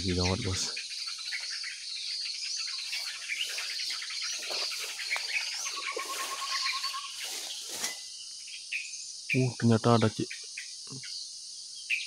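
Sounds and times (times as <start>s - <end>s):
birds chattering alarm calls: 0.0s - 12.0s
insects trilling: 0.0s - 12.0s.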